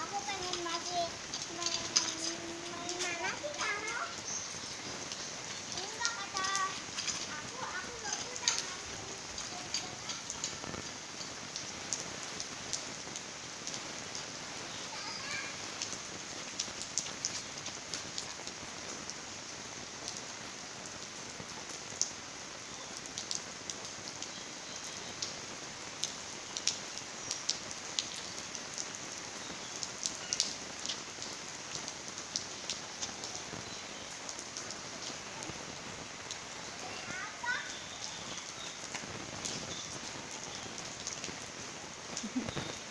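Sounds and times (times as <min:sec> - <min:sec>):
drops splashing: 0:00.0 - 0:10.8
rain falling: 0:00.0 - 0:42.9.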